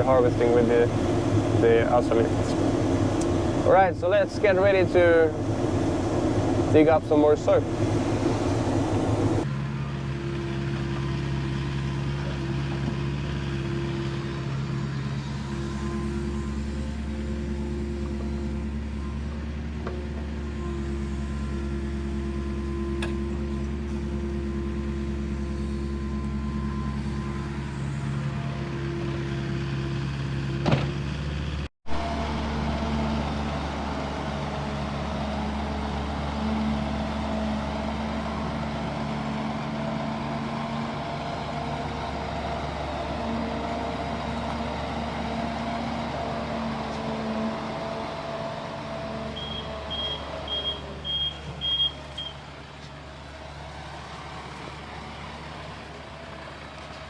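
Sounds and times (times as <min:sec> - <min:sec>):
excavator diesel engine running: 0:00.0 - 0:57.0
short high beeps: 0:49.4 - 0:52.4.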